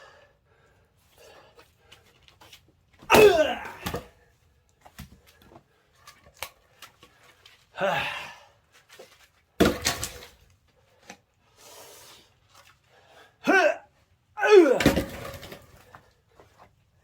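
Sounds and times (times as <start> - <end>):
man grunting with effort: 3.1 - 4.0, 7.8 - 8.4, 13.4 - 13.8, 14.4 - 15.1
axe striking firewood log: 9.6 - 10.2, 14.8 - 15.6.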